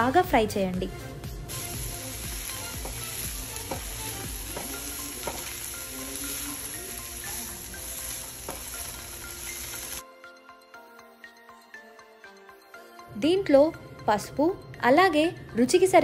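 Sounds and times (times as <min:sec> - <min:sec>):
broccoli sizzling in hot oil: 0:01.5 - 0:10.0
spatula scraping and knocking pan: 0:02.7 - 0:05.6.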